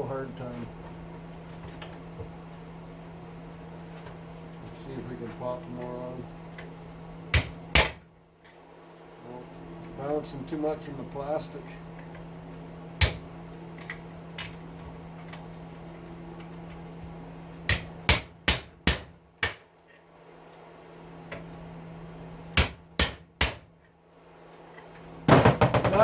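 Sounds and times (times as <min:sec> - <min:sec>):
hammer striking a metal punch: 0:07.3 - 0:08.0, 0:13.0 - 0:13.3, 0:17.7 - 0:19.6, 0:22.6 - 0:23.7.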